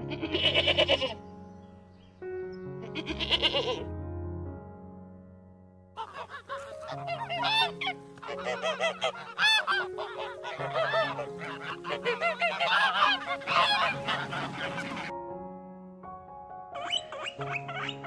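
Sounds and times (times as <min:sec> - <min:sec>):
flock of birds honking: 0:06.0 - 0:15.1.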